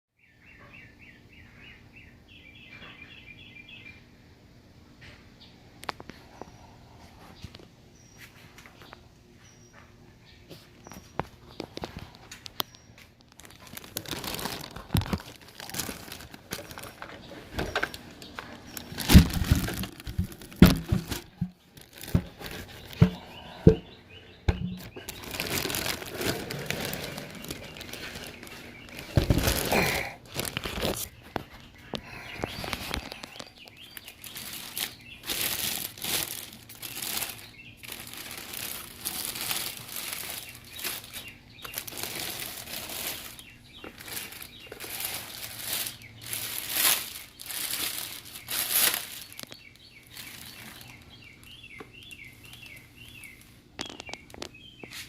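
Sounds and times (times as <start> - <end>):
cardboard and plastic crinkling: 10.8 - 23.9, 24.5 - 55.0
box thumps and knocks: 19.0 - 23.9.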